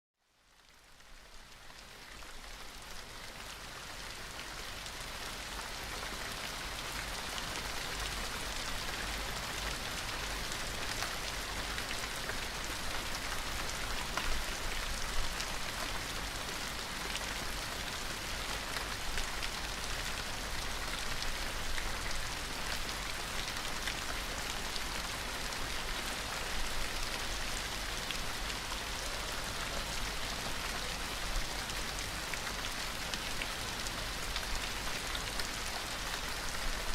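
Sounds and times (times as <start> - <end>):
rain falling: 0.3 - 36.9.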